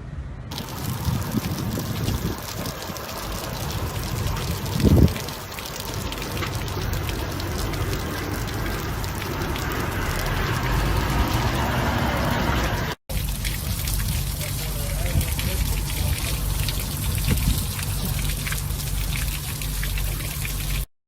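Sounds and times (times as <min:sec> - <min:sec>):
water splashing and rushing: 0:00.5 - 0:20.9.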